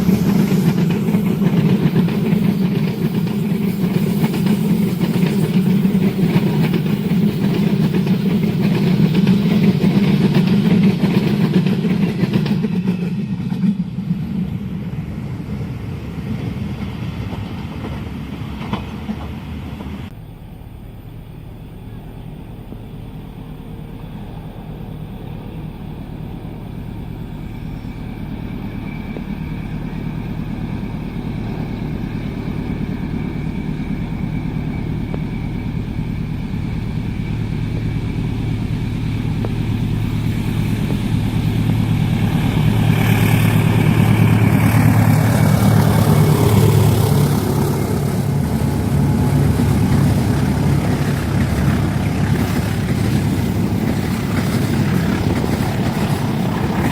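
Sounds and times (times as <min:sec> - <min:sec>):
diesel locomotive engine drone: 0:00.0 - 0:56.9.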